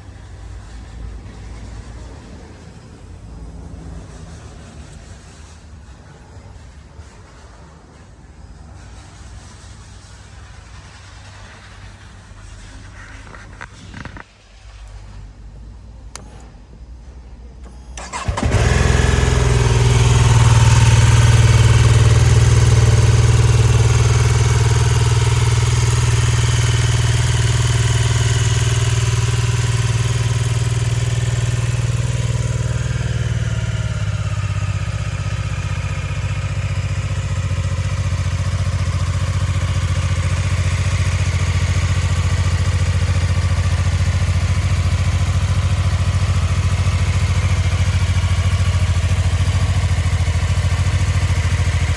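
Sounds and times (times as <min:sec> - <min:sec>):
motorcycle engine starting and idling: 0:17.6 - 0:51.9.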